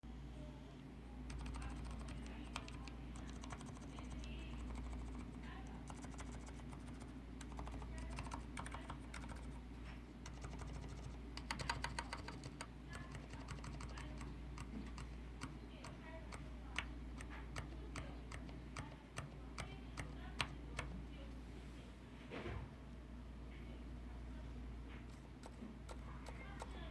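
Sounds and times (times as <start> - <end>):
soft keyboard keystrokes: 1.3 - 9.6, 10.2 - 21.0, 25.1 - 26.9.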